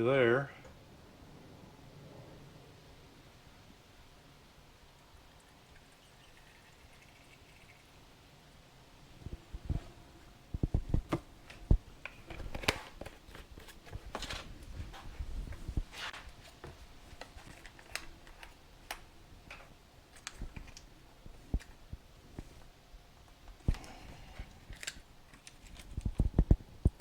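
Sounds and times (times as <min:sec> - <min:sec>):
scrapes and rustles: 0:09.2 - 0:18.6.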